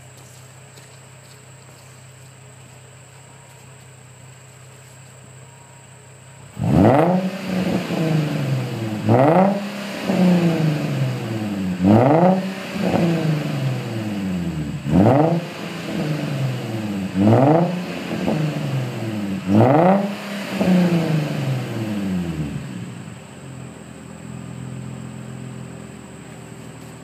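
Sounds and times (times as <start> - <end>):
car engine revving: 6.4 - 26.9.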